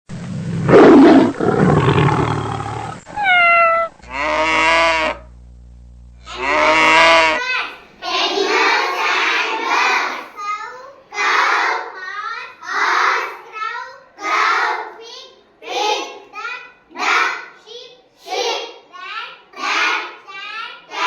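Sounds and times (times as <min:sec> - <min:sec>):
loud animal roar: 0:00.2 - 0:05.2, 0:06.3 - 0:07.4
animal calls: 0:00.6 - 0:05.2, 0:06.3 - 0:07.4
children's voices: 0:06.3 - 0:21.0.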